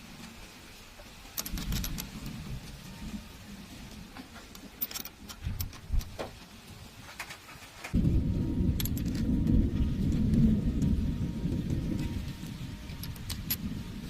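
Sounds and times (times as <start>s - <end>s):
metal pieces clinking: 1.4s - 2.2s, 4.5s - 6.0s, 8.8s - 9.3s.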